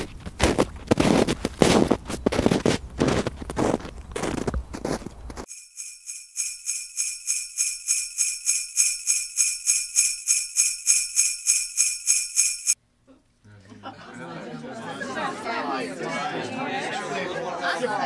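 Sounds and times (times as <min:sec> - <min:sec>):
jingle bells shaken: 0:05.5 - 0:12.8.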